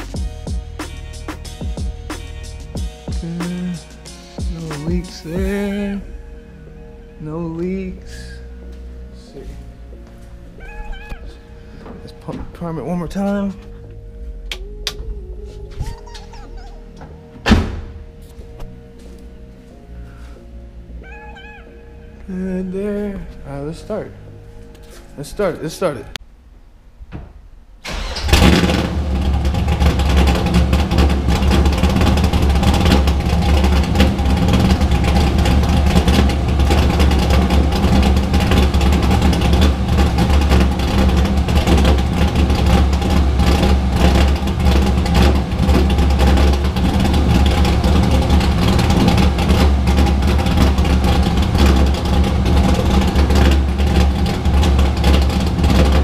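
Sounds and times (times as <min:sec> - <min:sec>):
engine starting and idling: 0:27.8 - 0:56.0.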